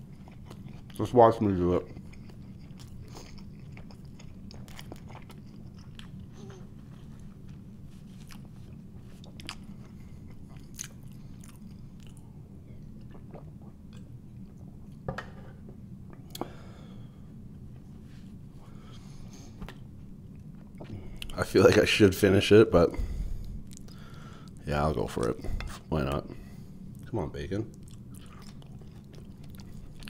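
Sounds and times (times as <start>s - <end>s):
person chewing: 0.0s - 1.0s, 1.8s - 15.0s, 23.0s - 24.6s, 27.7s - 30.0s
steady low hum: 0.0s - 30.0s.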